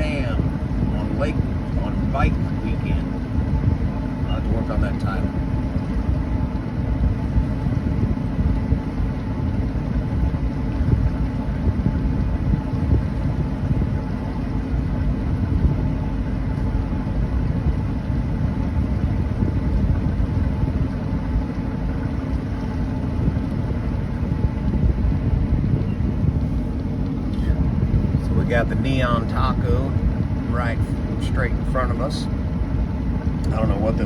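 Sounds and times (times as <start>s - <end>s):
boat engine low rumble: 0.0s - 34.0s.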